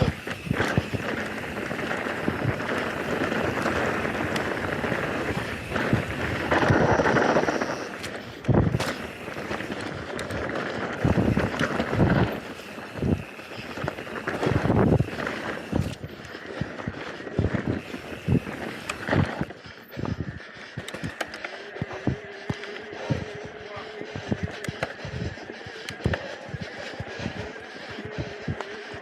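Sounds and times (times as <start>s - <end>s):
bike knocking over bumps: 0.0s - 10.4s
tyres rushing on dirt: 0.0s - 29.0s
wind buffeting microphone: 0.0s - 29.0s.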